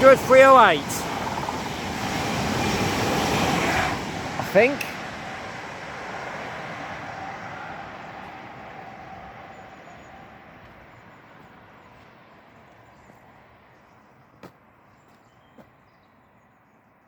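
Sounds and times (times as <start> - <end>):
electric train passing: 0.0 - 12.4.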